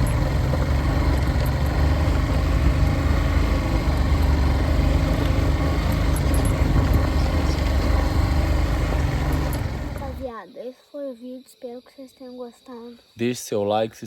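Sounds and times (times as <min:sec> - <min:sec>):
motorcycle engine rumble: 0:00.0 - 0:10.3.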